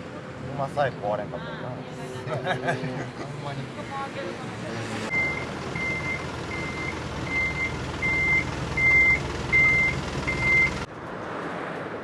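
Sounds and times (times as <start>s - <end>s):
low engine running: 5.1s - 10.9s
reversing alarm beeping: 5.1s - 10.9s.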